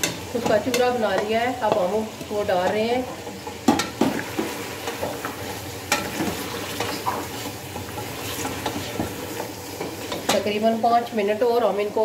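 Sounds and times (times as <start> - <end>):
meat sizzling in oil: 0.0 - 12.0
wooden spoon scraping a pot: 2.1 - 10.5.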